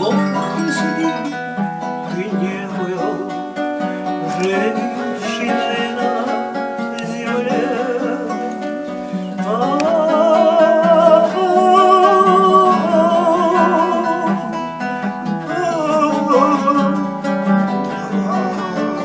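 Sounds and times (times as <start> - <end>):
acoustic guitar: 0.0 - 19.0
woman singing with vibrato: 4.1 - 19.0.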